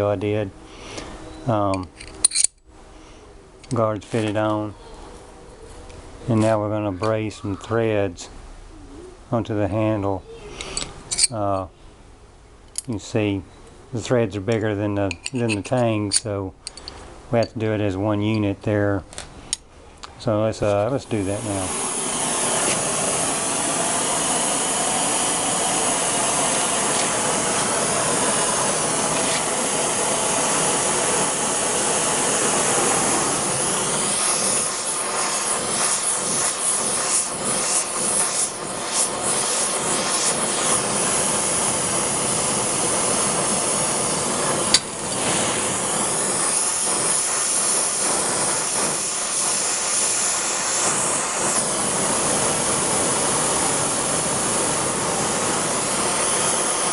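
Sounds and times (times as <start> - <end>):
gas torch flame hissing: 9.8 - 11.7, 20.2 - 56.9.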